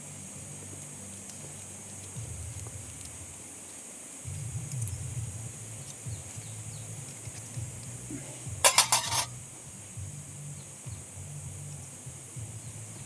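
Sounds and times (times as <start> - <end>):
sharp clinks: 0.0 - 9.4
faint low hum: 0.0 - 13.0
steady high hiss: 0.0 - 13.0.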